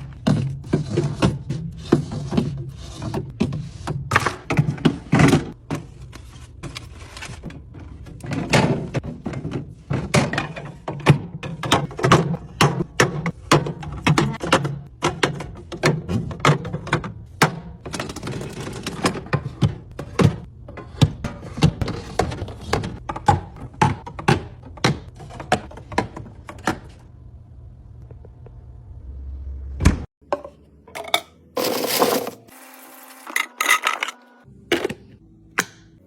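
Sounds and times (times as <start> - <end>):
items clunking as set down: 30.2 - 32.5.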